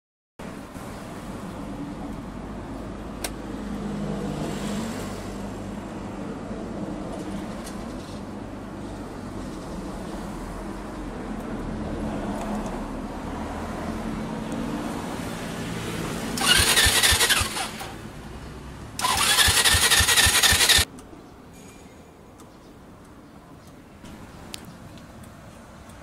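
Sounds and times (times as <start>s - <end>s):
scooter starter cranking: 16.4s - 18.0s, 19.0s - 20.9s.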